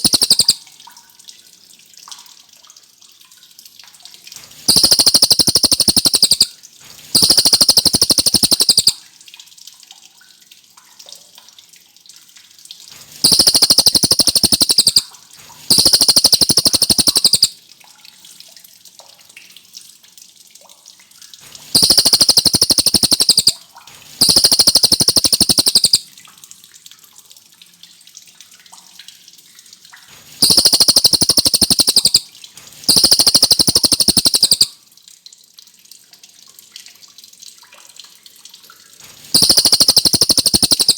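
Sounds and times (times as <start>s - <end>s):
faint steady hiss: 0.0s - 0.6s, 4.4s - 9.0s, 13.0s - 17.5s, 21.5s - 26.0s, 30.1s - 34.7s, 39.0s - 40.9s
songbird trilling: 0.0s - 0.6s, 4.7s - 6.5s, 7.2s - 9.0s, 13.2s - 15.0s, 15.7s - 17.5s, 21.8s - 23.6s, 24.2s - 26.0s, 30.4s - 32.2s, 32.9s - 34.7s, 39.4s - 40.9s.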